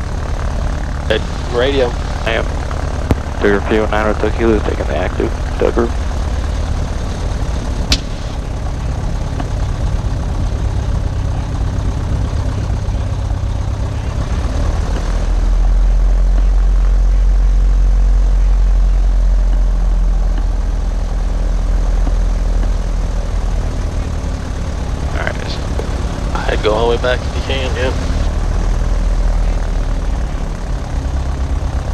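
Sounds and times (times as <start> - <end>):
light aircraft piston engine droning: 0.0 - 31.9
sharp click: 7.9 - 8.4.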